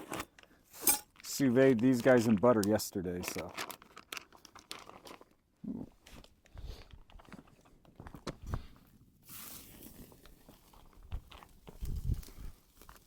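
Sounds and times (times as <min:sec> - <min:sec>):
cooking gear clattering: 0:00.0 - 0:01.2
steak sizzling in butter: 0:09.3 - 0:10.1.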